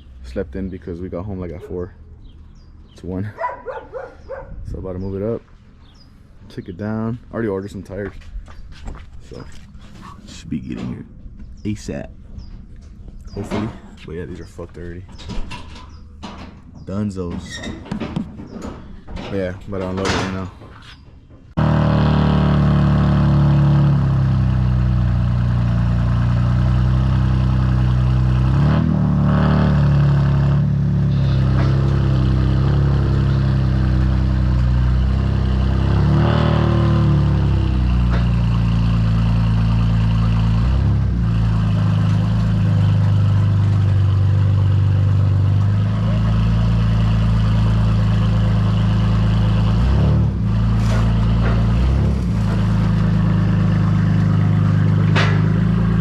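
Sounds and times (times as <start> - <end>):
car engine revving: 21.6 - 56.0.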